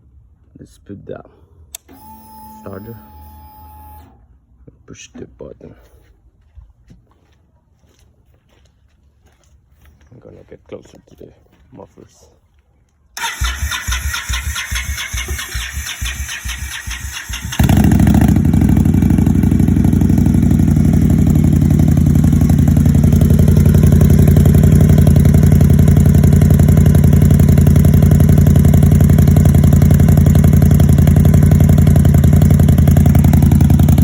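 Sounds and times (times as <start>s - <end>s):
motorcycle starter cranking: 13.2s - 21.5s
motorcycle engine idling: 13.2s - 34.0s.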